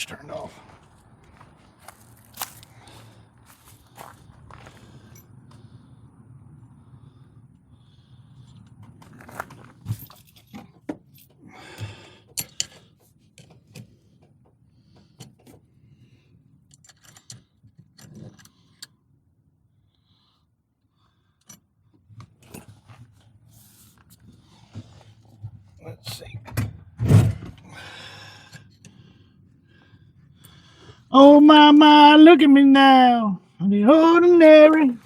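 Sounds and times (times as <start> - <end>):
metal parts clicking and rattling: 16.7 - 18.5.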